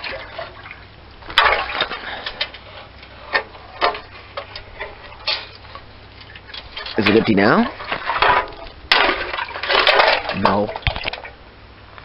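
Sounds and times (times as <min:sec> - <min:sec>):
metal muffler clatter: 0:00.0 - 0:11.4
water spattering from muffler: 0:03.8 - 0:11.4.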